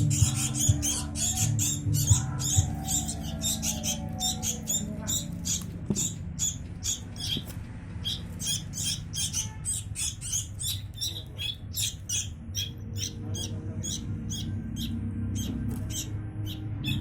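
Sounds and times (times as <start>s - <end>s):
nestlings begging chirps: 0.0s - 17.0s.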